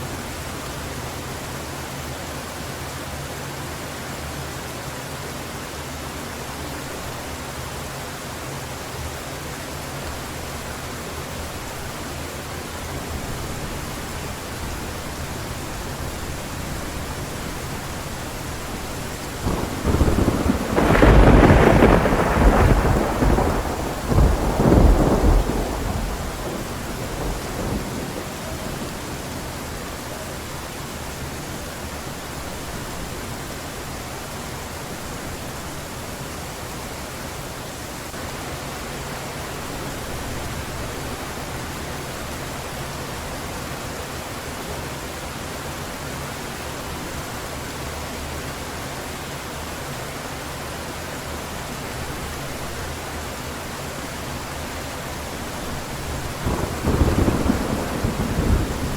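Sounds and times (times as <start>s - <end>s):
heavy rain hissing: 0.0s - 58.9s
thunder rumble: 13.1s - 30.7s, 55.4s - 58.9s.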